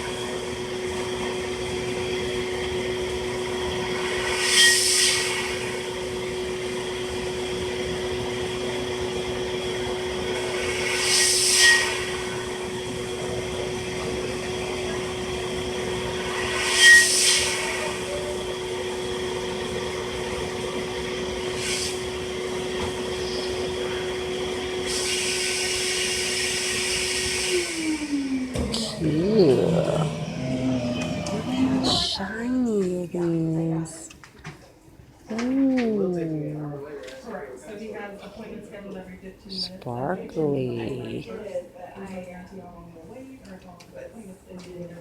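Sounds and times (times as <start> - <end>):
cleaning machine motor hum: 28.5 - 32.4.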